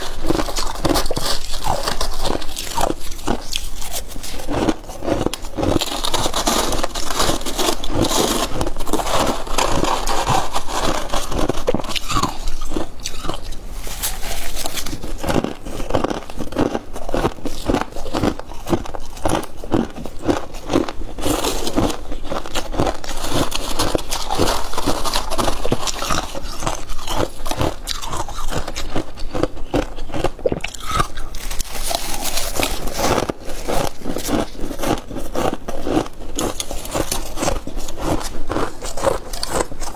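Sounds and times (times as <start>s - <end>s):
frost crunching while chewed: 0.0s - 39.9s.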